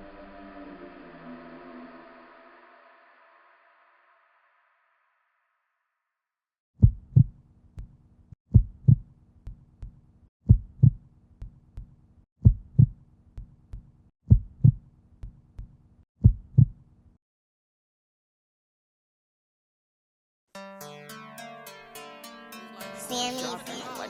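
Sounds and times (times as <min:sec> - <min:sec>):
heartbeat double thump: 0:06.8 - 0:07.9, 0:08.5 - 0:16.8.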